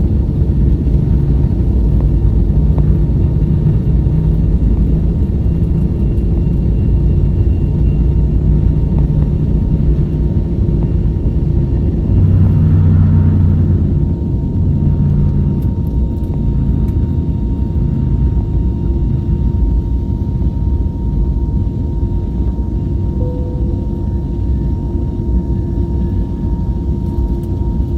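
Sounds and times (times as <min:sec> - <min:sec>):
airplane cabin engine rumble: 0:00.0 - 0:27.9
faint engine whine: 0:00.0 - 0:27.9
thin high tone: 0:23.2 - 0:24.9.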